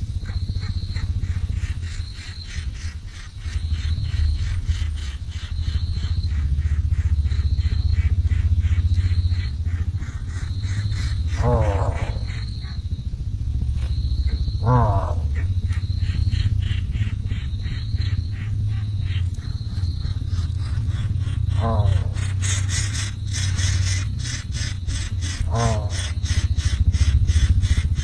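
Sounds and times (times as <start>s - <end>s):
insect trilling: 0.0s - 28.0s
steady low hum: 0.0s - 28.0s
short pitched calls: 10.3s - 12.8s.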